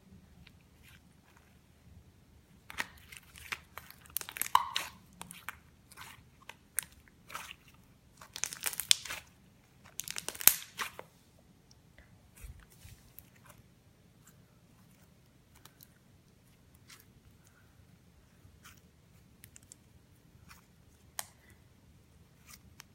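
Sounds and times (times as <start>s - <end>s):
slime being squished by hand: 2.6s - 11.0s.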